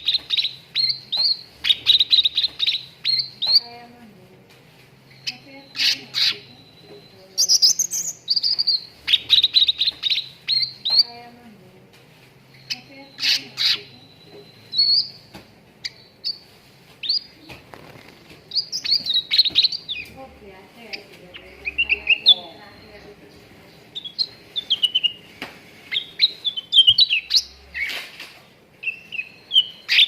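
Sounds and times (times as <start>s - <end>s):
bulbul song chirps and whistles: 7.4s - 11.1s, 12.7s - 15.2s, 18.5s - 20.1s, 25.9s - 28.0s, 28.8s - 30.0s.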